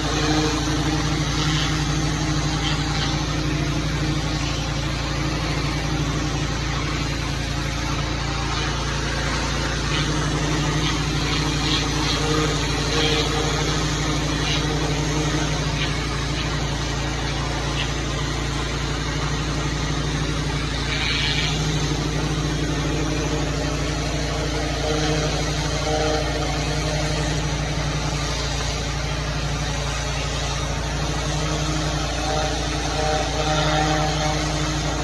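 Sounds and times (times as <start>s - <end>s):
small engine running: 0.0s - 35.0s
steady rushing hiss: 0.0s - 35.0s.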